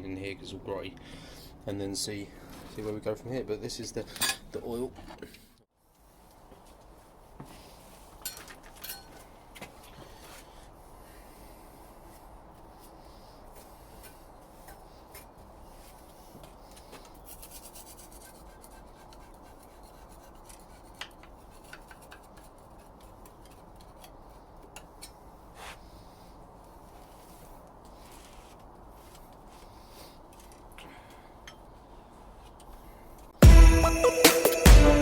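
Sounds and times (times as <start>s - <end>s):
hand rubbing and scraping metal: 7.2s - 30.7s.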